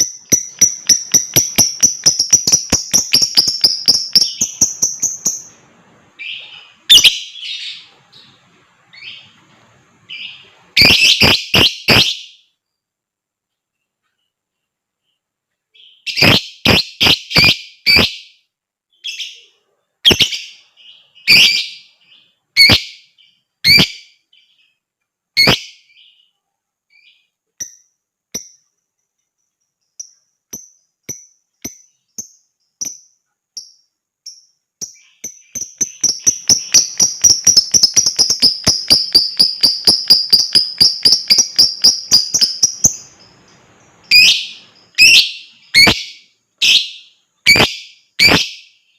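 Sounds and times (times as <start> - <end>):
lovebird fast chattering trill: 0.0 - 5.5, 34.9 - 43.3
lovebird high peeps: 0.0 - 9.4, 10.0 - 12.4, 15.8 - 18.4, 19.0 - 24.7, 25.4 - 26.3, 29.9 - 48.8
lovebird chirping: 0.0 - 13.0, 13.7 - 48.9.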